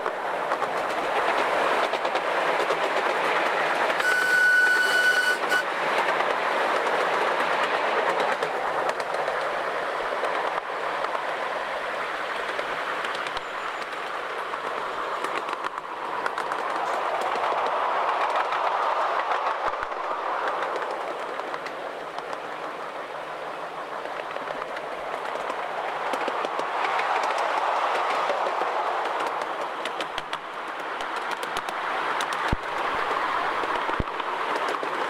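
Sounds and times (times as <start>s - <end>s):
miniature train wheels rumbling: 0.0s - 35.0s
clicks over rail joints: 24.0s - 35.0s.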